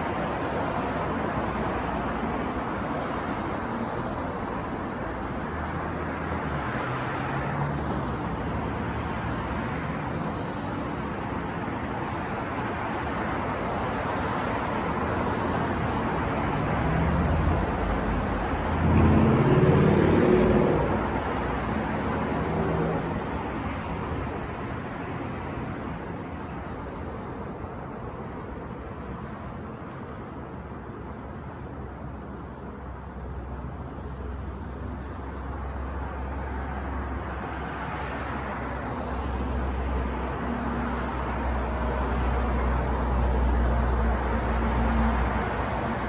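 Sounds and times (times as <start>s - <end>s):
cars passing: 0.0s - 46.0s
heavy vehicle passing close: 16.2s - 24.3s.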